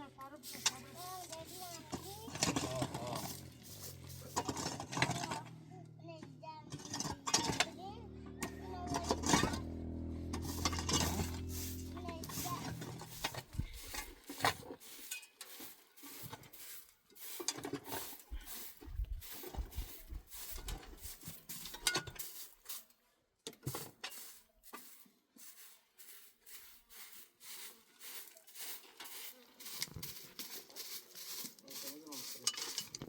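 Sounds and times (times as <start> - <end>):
objects clattering and scraping: 0.3 - 5.6, 6.6 - 22.8, 23.5 - 25.1, 27.7 - 33.0.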